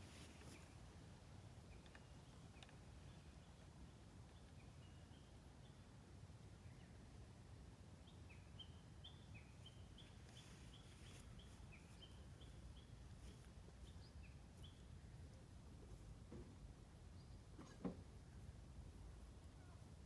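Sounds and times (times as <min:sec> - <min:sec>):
bird chirping faintly: 0:08.0 - 0:16.2.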